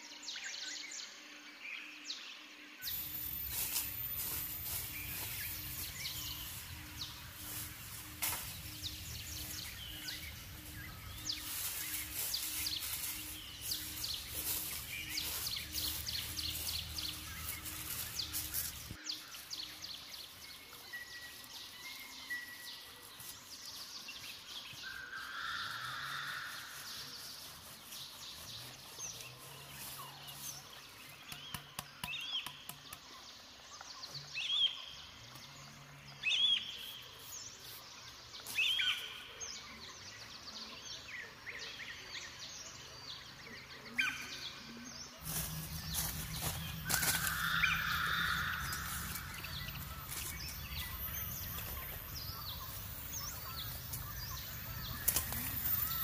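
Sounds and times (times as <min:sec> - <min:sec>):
birds calling: 0:02.9 - 0:19.0, 0:43.9 - 0:56.0.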